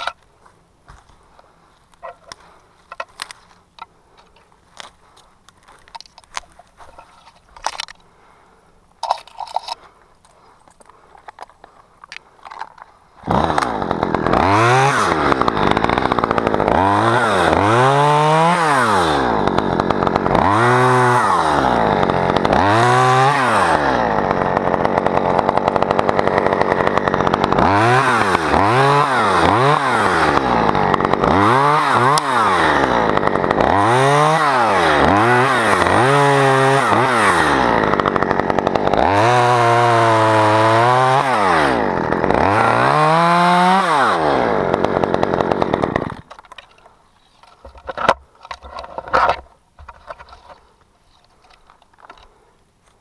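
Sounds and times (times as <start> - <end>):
chainsaw revving cutting wood: 9.0 - 47.0.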